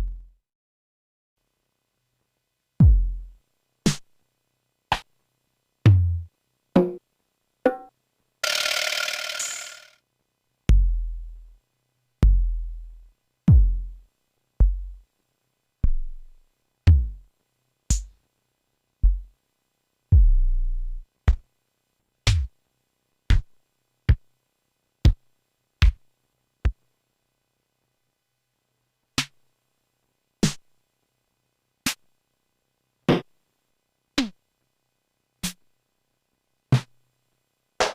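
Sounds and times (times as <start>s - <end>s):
drum machine deep drum hits: 2.8s - 3.2s, 13.5s - 13.9s, 16.9s - 17.2s.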